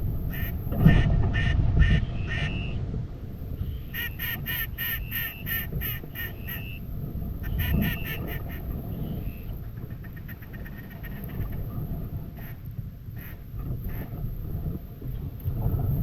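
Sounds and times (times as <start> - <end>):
wind rumble on microphone: 0.0 - 16.0
duck quacking: 0.3 - 2.7, 3.7 - 6.8, 7.4 - 8.6, 12.4 - 12.6, 13.2 - 14.0.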